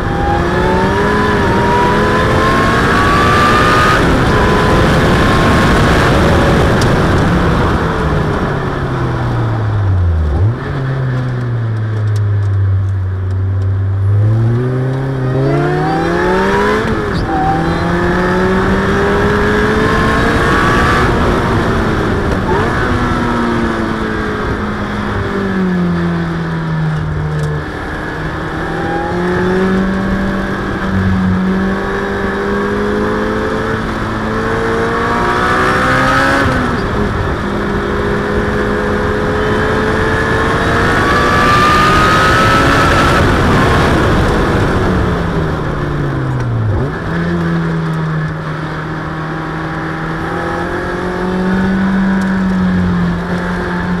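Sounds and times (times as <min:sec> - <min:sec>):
car engine revving hard: 0:00.0 - 0:07.8, 0:14.0 - 0:25.2, 0:27.6 - 0:45.2.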